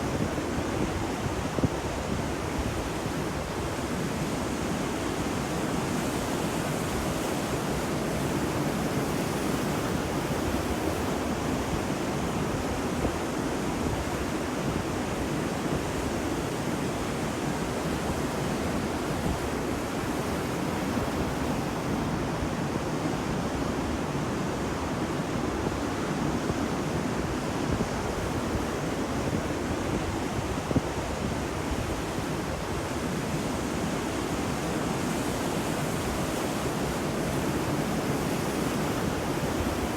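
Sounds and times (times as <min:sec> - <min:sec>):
ocean surf washing onto beach: 0:00.0 - 0:39.9.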